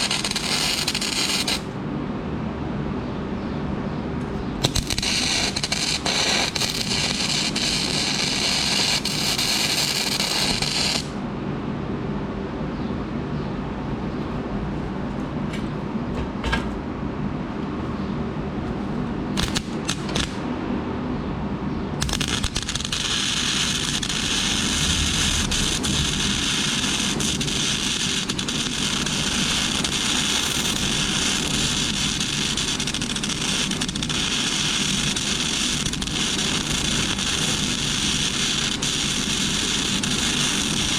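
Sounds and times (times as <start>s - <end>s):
welding arc crackling: 0.0s - 1.7s, 4.6s - 11.2s, 19.4s - 20.4s, 22.0s - 40.9s
low background hum: 0.0s - 40.9s.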